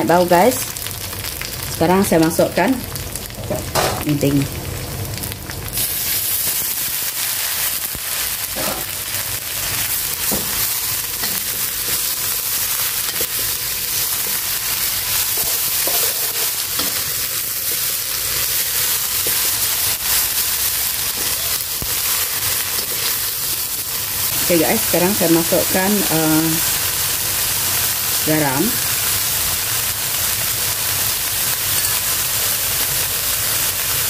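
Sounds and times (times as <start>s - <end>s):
vegetables sizzling in a wok: 0.0s - 34.0s.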